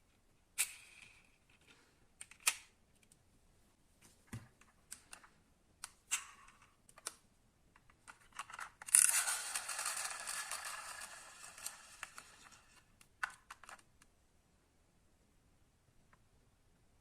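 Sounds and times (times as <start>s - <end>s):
metal toy cars clicking: 8.1s - 13.8s.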